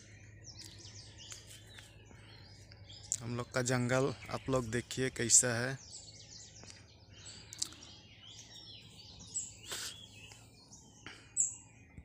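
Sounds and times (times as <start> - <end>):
faint outdoor background noise: 0.0 - 12.0
wild birds chirping: 0.0 - 12.0.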